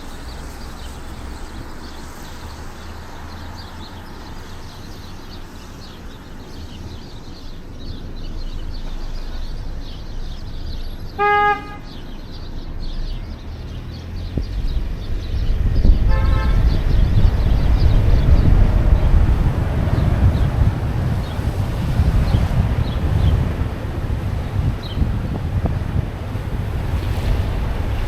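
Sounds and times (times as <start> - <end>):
street traffic rumble: 0.0 - 28.0
car horn honk: 11.2 - 12.1, 16.1 - 16.8
faint car horn: 11.2 - 12.1, 16.1 - 16.9.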